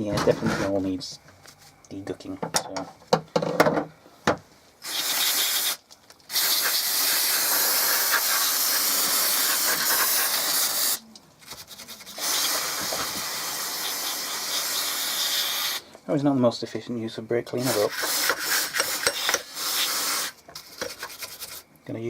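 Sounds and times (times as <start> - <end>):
aerosol can spraying: 4.8 - 11.0, 12.1 - 15.8, 17.6 - 21.6.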